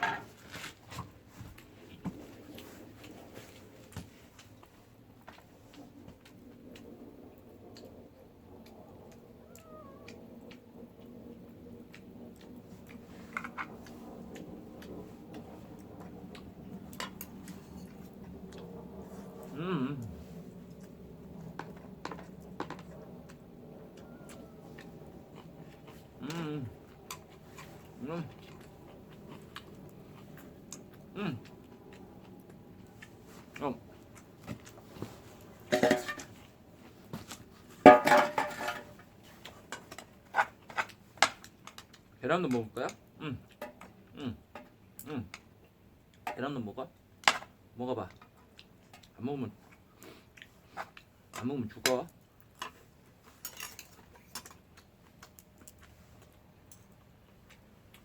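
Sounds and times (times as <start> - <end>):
low steady hum: 0.0 - 58.0
cat meowing: 9.4 - 10.2, 24.0 - 24.8.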